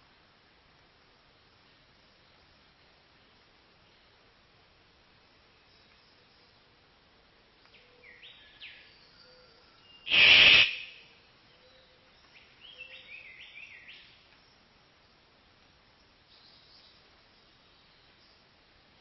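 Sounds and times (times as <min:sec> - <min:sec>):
bird chirping: 0:07.7 - 0:14.6
loud harsh burst: 0:10.1 - 0:11.0.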